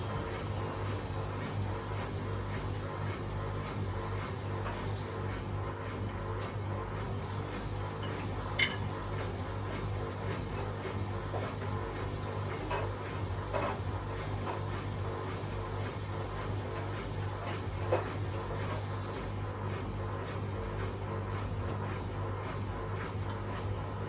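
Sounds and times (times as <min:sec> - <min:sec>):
washing machines spinning: 0:00.0 - 0:24.0.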